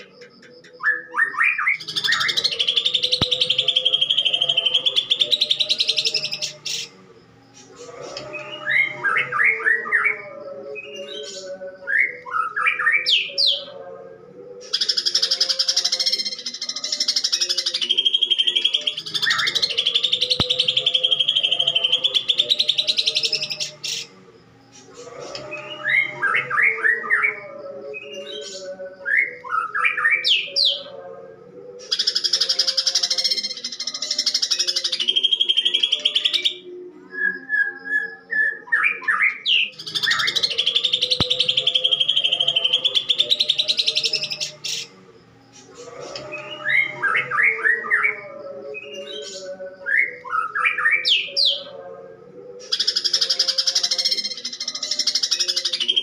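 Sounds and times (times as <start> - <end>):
bird singing rising chirps: 14.9 - 24.1, 39.6 - 45.0.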